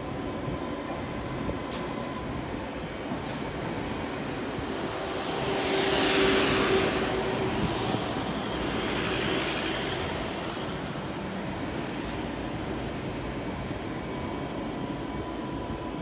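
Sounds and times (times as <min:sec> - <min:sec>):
electric train running past: 0:00.0 - 0:16.0
train whine: 0:00.0 - 0:16.0.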